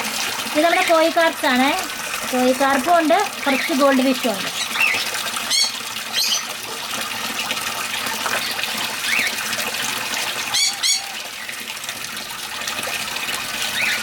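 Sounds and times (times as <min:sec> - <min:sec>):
water splashing into pond: 0:00.0 - 0:14.0
birds chirping and squawking: 0:03.4 - 0:06.6, 0:08.4 - 0:09.5, 0:10.4 - 0:11.6, 0:13.6 - 0:14.0.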